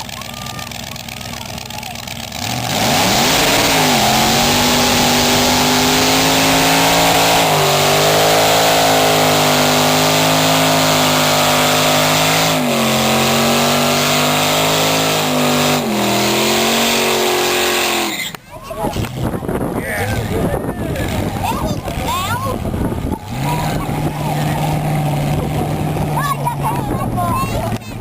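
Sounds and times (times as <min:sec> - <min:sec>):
spinning tyres hissing: 0:00.0 - 0:18.6
car engine at high revs: 0:00.0 - 0:28.0.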